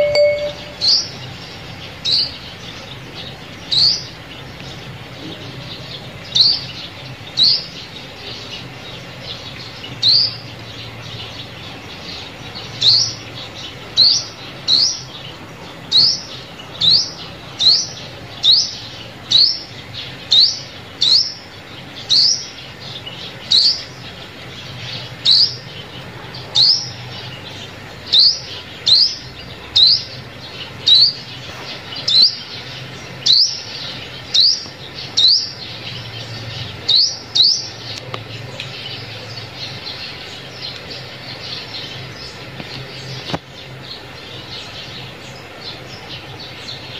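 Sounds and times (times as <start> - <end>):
bird sharp high chirps: 0.0 - 1.3, 33.2 - 38.0.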